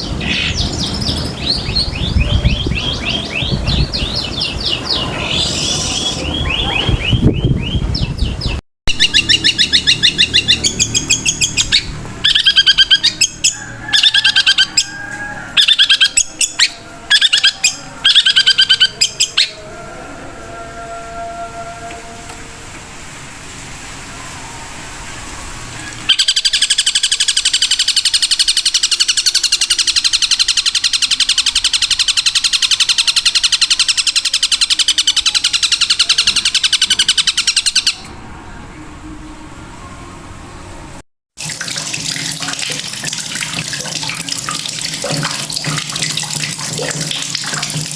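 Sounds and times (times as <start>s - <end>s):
songbird chirps and trills: 15.6s - 19.7s.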